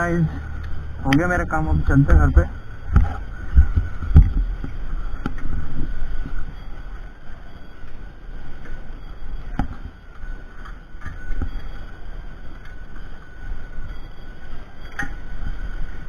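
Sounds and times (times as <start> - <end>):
wind on microphone: 0.4 - 7.0.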